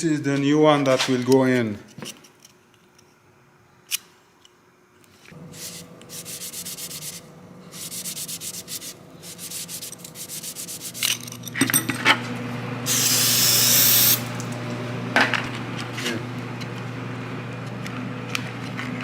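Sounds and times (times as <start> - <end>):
steady low hum: 4.6 - 19.0
spray hiss: 12.9 - 14.2.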